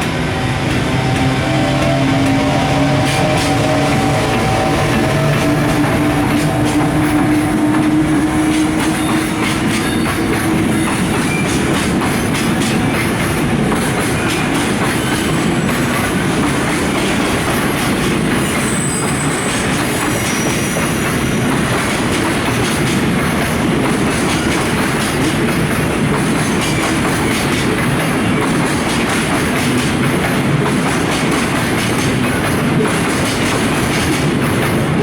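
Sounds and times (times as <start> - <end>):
freight train rumbling past: 0.0 - 35.0
high-pitched wheel squeals: 0.7 - 11.8, 18.3 - 21.5.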